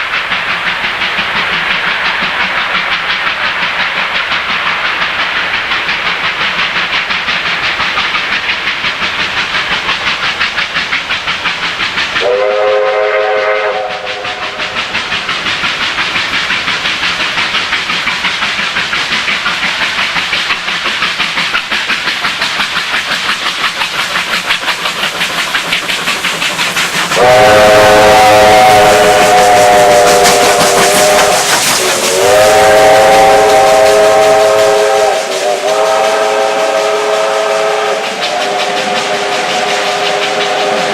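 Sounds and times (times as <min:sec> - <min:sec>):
steam locomotives chugging: 0:00.0 - 0:40.9
steam whistle blasts: 0:12.2 - 0:14.7, 0:27.2 - 0:40.9.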